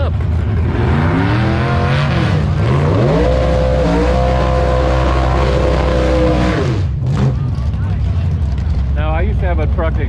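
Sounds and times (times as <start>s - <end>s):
drag racing car accelerating: 0.0s - 10.0s.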